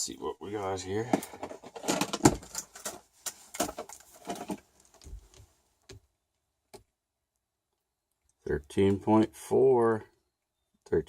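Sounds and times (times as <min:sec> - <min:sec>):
handling clicks taps and rustles: 0:01.0 - 0:06.1.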